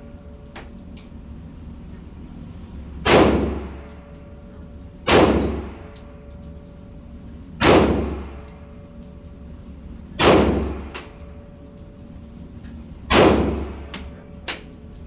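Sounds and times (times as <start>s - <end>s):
pistol shots: 3.0s - 3.8s, 5.1s - 5.9s, 7.6s - 8.4s, 10.2s - 11.1s, 13.1s - 13.9s.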